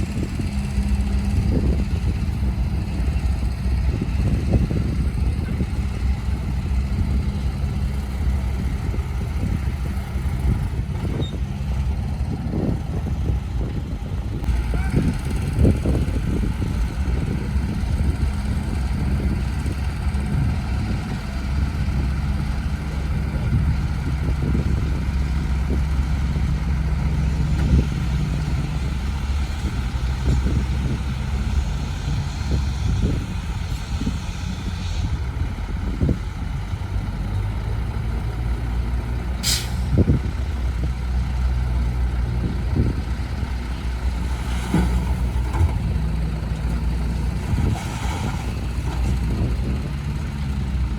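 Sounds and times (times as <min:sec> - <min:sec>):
diesel truck engine running: 0:00.0 - 0:50.9
air brake hiss: 0:39.4 - 0:40.0.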